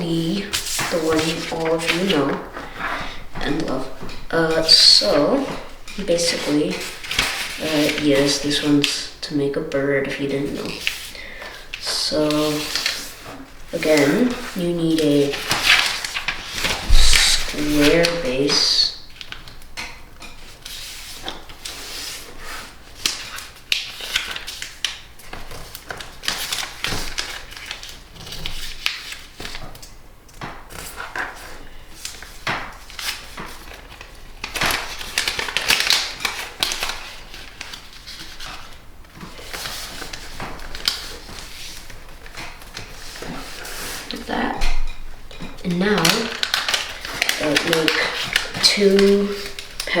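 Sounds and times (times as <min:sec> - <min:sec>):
paper creasing: 0:00.0 - 0:09.1, 0:10.4 - 0:19.6, 0:45.7 - 0:50.0
paper crackling and rustling: 0:00.0 - 0:50.0.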